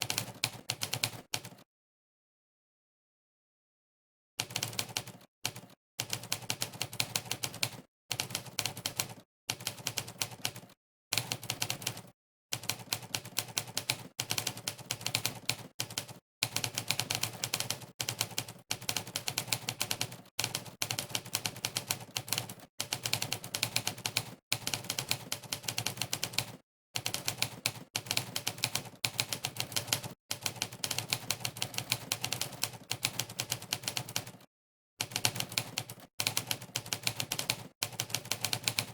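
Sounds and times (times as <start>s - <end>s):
typewriter keystroke clacks: 12.6s - 34.4s, 35.0s - 38.9s.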